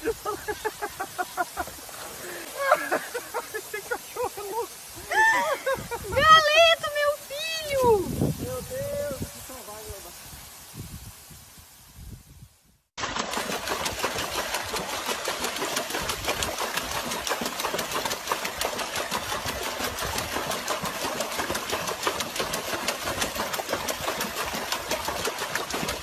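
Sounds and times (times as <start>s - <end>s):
dog splashing water in a tub: 13.0s - 26.0s.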